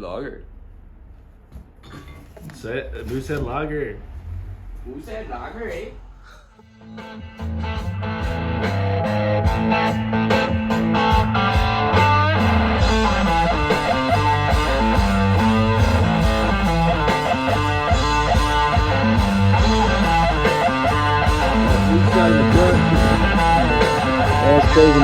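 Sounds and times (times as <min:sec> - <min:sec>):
steady bass line: 0:02.6 - 0:25.0
rock music with electric guitar: 0:06.7 - 0:25.0.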